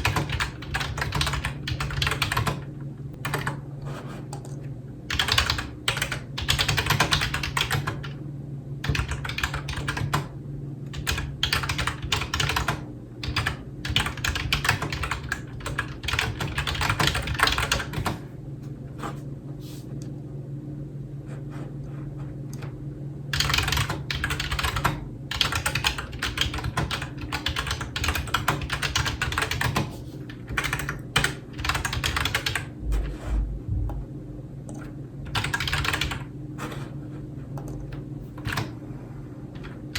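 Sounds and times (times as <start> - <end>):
keyboard typing: 0.0 - 3.6, 4.3 - 8.1, 8.8 - 10.3, 10.9 - 18.2, 23.3 - 33.3, 34.6 - 36.9, 37.6 - 38.8
low steady hum: 0.0 - 39.9.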